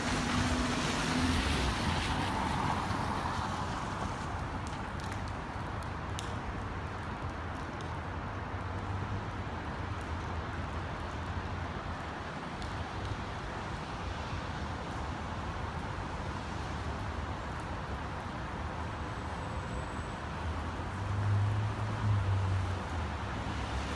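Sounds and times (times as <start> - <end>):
rain: 0.0 - 23.9
traffic on wet roads: 0.0 - 23.9.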